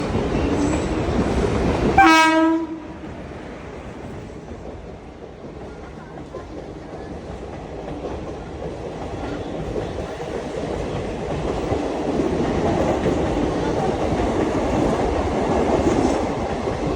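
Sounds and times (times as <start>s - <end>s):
train rumbling along track: 0.0s - 16.9s
train horn blast: 2.0s - 3.1s.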